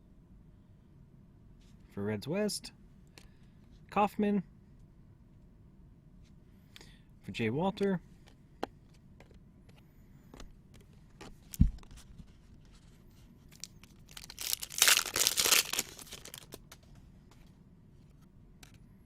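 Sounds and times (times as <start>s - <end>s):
wrapper tearing and crinkling: 13.5s - 16.6s.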